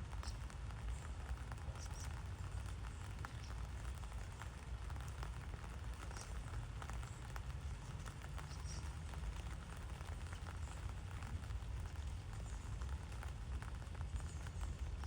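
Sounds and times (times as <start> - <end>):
raindrops ticking: 0.0 - 15.0.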